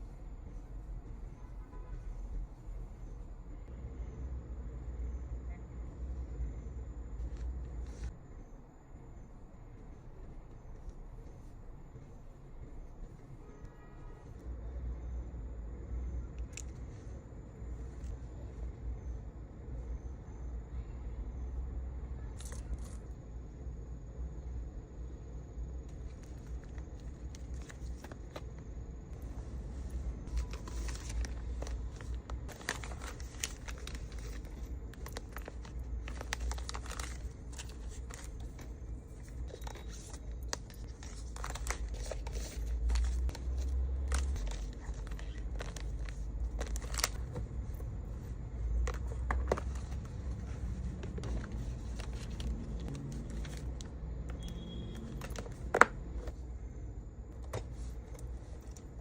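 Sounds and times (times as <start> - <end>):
packaging rustling and crinkling: 25.9 - 28.6, 29.2 - 56.4
packaging tearing: 30.3 - 38.6, 39.4 - 47.4.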